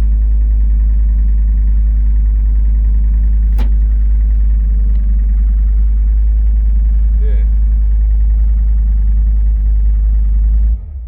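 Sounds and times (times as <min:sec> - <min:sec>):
diesel engine running: 0:00.0 - 0:11.0
sharp click: 0:03.5 - 0:05.1.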